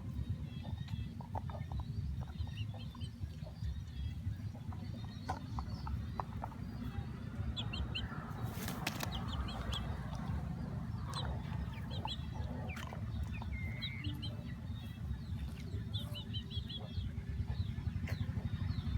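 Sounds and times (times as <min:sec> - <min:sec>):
birds chirping: 0:00.0 - 0:18.9
steady low rumble: 0:00.0 - 0:18.9.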